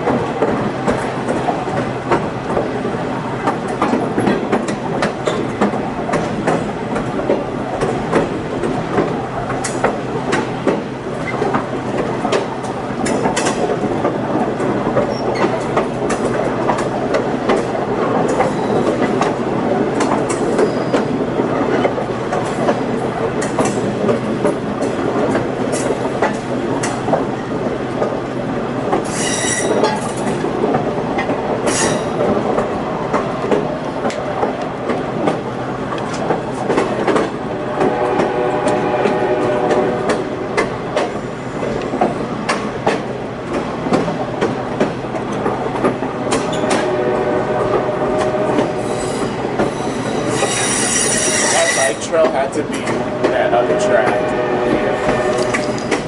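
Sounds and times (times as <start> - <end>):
train rumbling with wheel clicks: 0.0 - 56.0
high-pitched wheel squeals: 29.1 - 30.0, 48.8 - 52.0.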